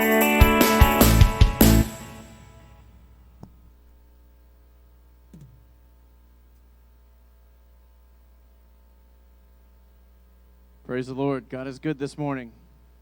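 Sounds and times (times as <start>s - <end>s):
low electrical hum: 2.3s - 13.0s.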